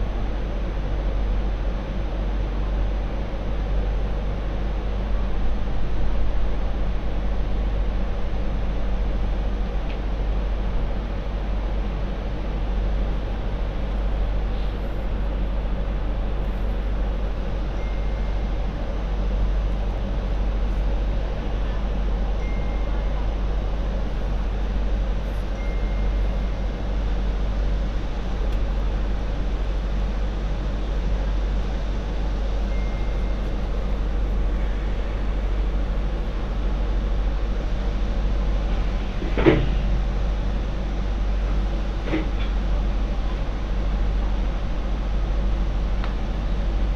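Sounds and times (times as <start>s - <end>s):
tram rumbling along track: 0.0s - 46.9s
faint short high tone: 17.8s - 18.5s, 22.4s - 23.2s, 32.7s - 33.5s.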